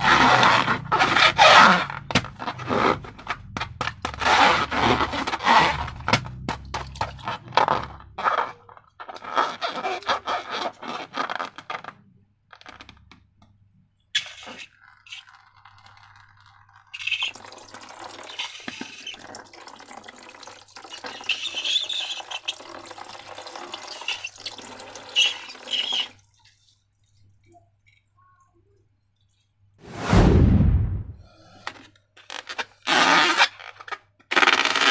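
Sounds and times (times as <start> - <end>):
thick liquid pouring: 14.7 - 28.1.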